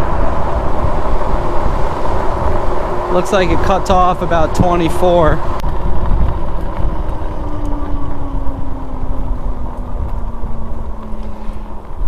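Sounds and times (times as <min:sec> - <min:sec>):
e-bike whine: 0:00.0 - 0:12.0
wind rushing over microphone: 0:00.0 - 0:12.0.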